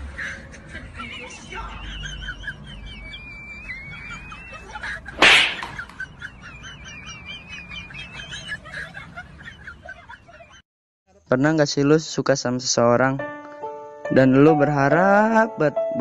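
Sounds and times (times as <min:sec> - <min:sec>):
birds chirping: 0:01.9 - 0:10.6
high whistled bird note: 0:05.2 - 0:05.8
loud smack: 0:05.2 - 0:05.9.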